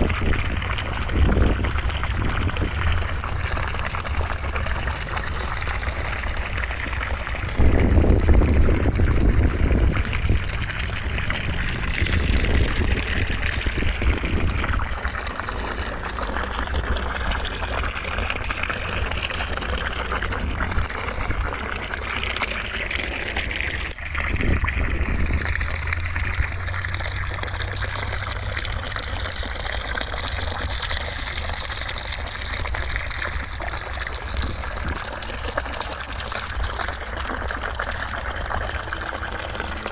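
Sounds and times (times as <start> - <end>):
low rumble: 7.2 - 15.2.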